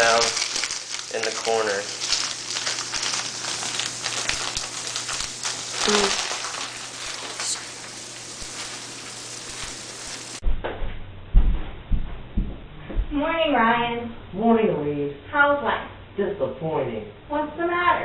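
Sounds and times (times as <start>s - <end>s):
onion sizzling in a pan: 0.0s - 10.4s
low thumps: 10.4s - 14.3s.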